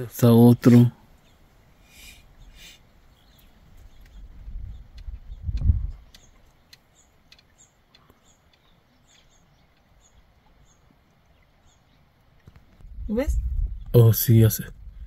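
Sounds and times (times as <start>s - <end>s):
light ticks: 4.9s - 10.6s
low rumble: 12.8s - 15.0s.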